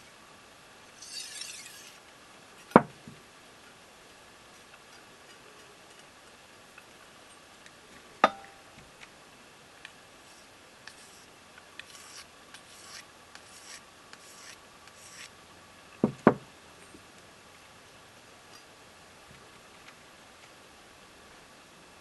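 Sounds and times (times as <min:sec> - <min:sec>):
knife scraping on sharpening stone: 0:01.0 - 0:02.0, 0:10.3 - 0:15.3.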